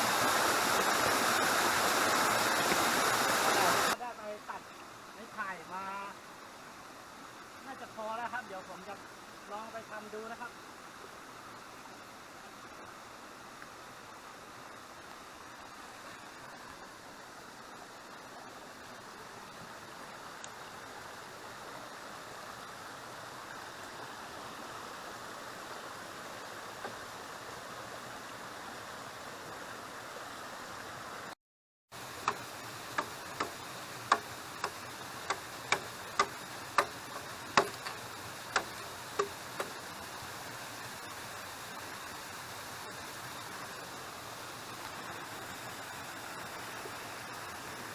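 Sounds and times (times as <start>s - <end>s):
waterfall and stream rushing: 0.0s - 31.4s, 32.0s - 47.9s
tool knocking on bamboo: 32.2s - 39.8s.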